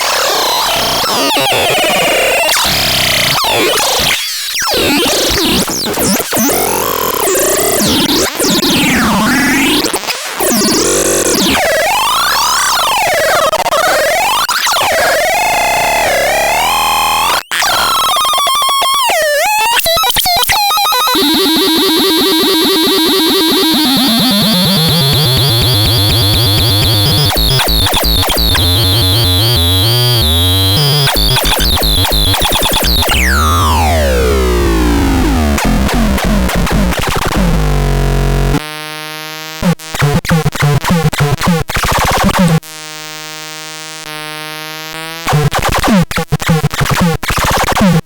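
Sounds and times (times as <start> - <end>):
harsh synthesizer tones: 13.9 - 38.6
high whine: 21.2 - 38.6
low tone stepping downward: 23.0 - 38.6.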